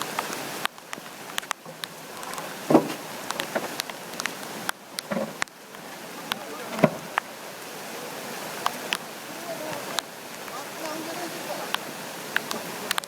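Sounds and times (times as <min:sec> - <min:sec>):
flooded river rushing: 0:00.0 - 0:13.0
dull knocks: 0:02.7 - 0:03.7.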